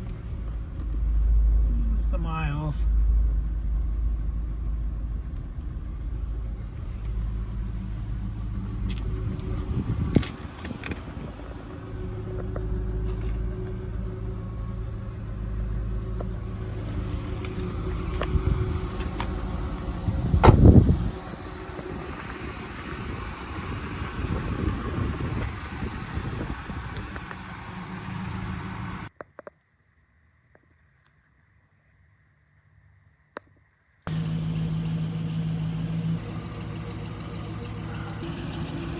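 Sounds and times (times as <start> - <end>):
car engine idling: 0.0 - 29.1, 34.1 - 38.9
wind buffeting microphone: 8.9 - 11.6, 17.1 - 27.3.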